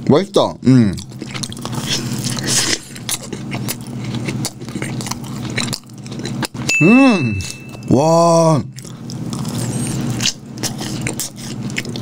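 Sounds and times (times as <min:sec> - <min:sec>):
person chewing donut: 0:00.6 - 0:12.0
low steady hum: 0:03.0 - 0:12.0.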